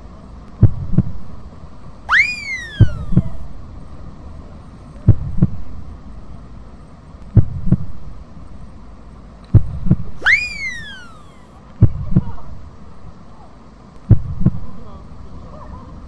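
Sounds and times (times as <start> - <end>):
rising and falling whistle: 2.1 - 3.5, 10.2 - 11.5
heartbeat thumps: 2.8 - 3.6, 5.1 - 5.7, 7.4 - 8.0, 9.6 - 10.4, 11.8 - 12.3, 14.1 - 14.6.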